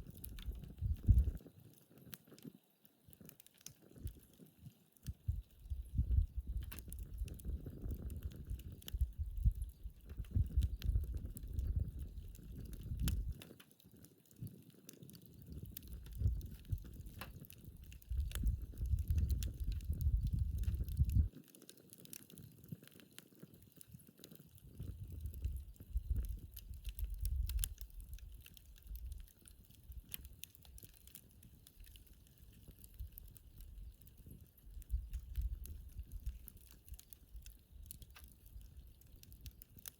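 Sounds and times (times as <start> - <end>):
campfire crackling and popping: 0.0 - 39.9
low gusty rumble: 18.0 - 21.3.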